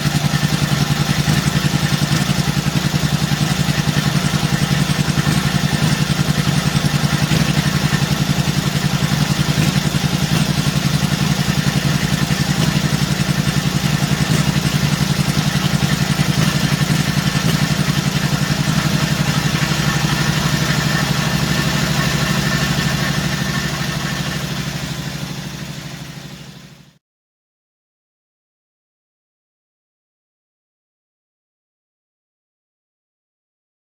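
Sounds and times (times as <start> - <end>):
motorcycle engine idling: 0.0 - 27.0.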